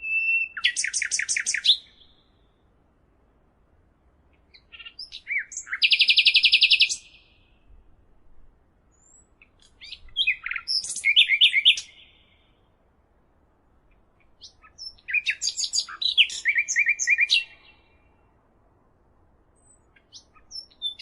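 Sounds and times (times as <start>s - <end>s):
songbird singing trills: 0.0s - 2.6s, 4.5s - 7.7s, 8.9s - 12.7s, 13.9s - 18.3s, 19.6s - 21.0s.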